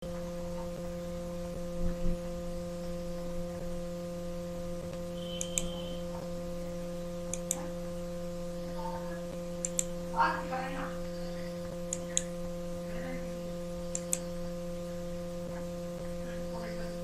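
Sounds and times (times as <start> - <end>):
electrical mains hum: 0.0 - 17.0
sharp paired clicks: 5.4 - 5.7, 9.6 - 9.9, 13.9 - 14.3.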